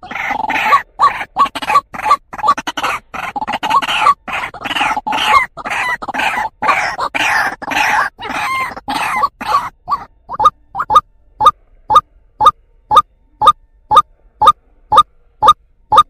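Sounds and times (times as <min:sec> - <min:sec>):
bird harsh call notes: 0:00.0 - 0:11.0.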